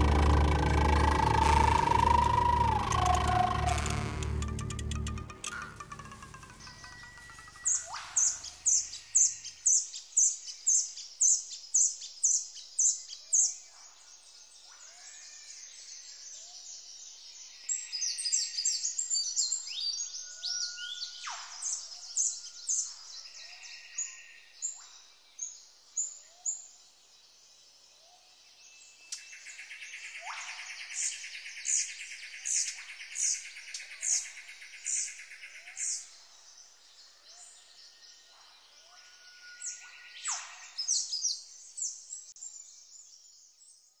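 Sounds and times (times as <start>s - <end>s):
buzzy bird trill: 0.0s - 8.9s
high downward-sweeping bird chirps: 0.0s - 9.6s.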